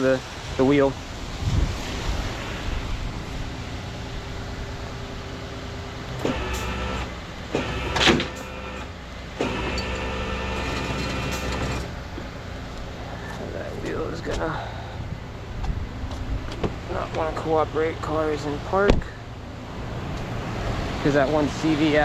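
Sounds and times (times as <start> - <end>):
truck engine rumble: 0.0 - 22.0
winch motor whine: 4.2 - 13.9.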